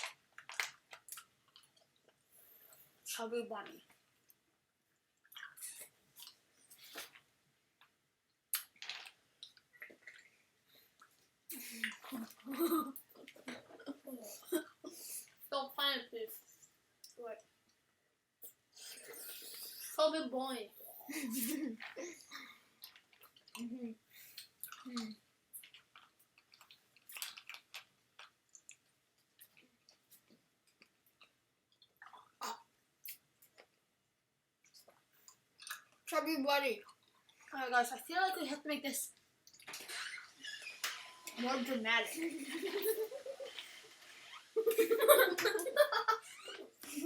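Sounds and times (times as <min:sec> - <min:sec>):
person chewing wetly: 0:00.0 - 0:02.2, 0:05.2 - 0:10.3, 0:22.7 - 0:33.8, 0:34.6 - 0:36.1, 0:39.4 - 0:40.4
wet muffled mouth sounds: 0:18.4 - 0:20.0.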